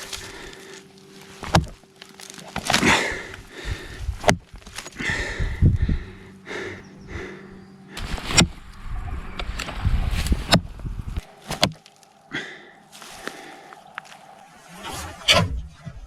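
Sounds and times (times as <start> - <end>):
sharp knocks and thuds: 1.4 - 1.8, 4.2 - 4.6, 11.5 - 11.8
low rumble: 3.2 - 16.0.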